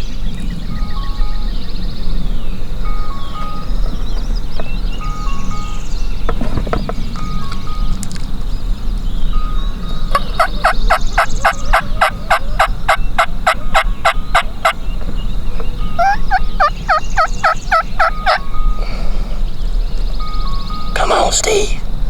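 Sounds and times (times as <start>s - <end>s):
turkey yelping: 10.1s - 14.8s, 15.6s - 19.0s.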